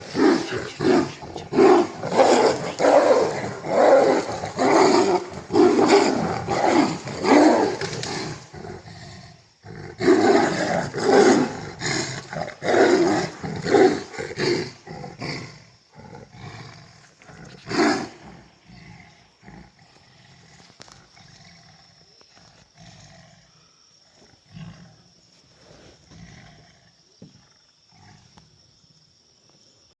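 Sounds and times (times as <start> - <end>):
tigers roaring: 0.0 - 23.6
high insect buzz: 0.0 - 29.9.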